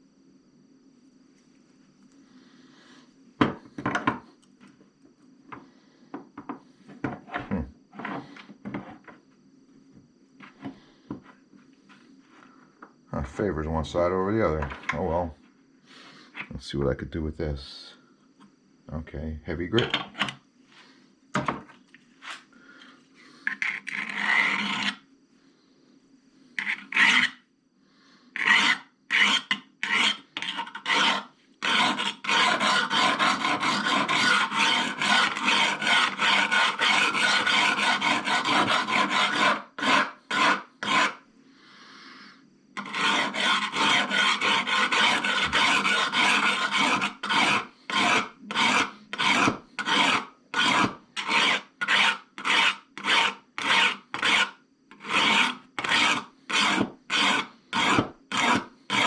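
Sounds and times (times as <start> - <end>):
hone rasping on steel blade: 23.4 - 25.0, 26.6 - 27.4, 28.4 - 41.2, 42.8 - 59.0.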